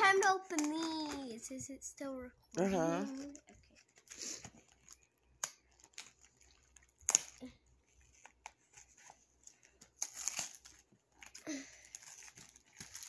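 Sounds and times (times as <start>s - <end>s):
packaging being torn open: 3.1s - 7.5s, 10.0s - 13.0s.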